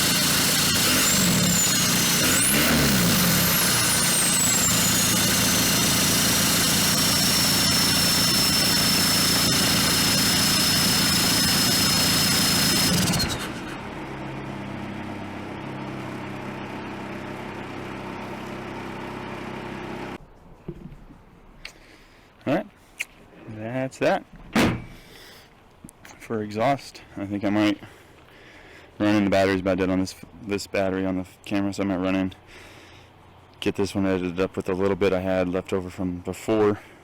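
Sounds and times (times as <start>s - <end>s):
diesel engine idling: 0.0s - 20.2s
high whine: 0.0s - 20.2s.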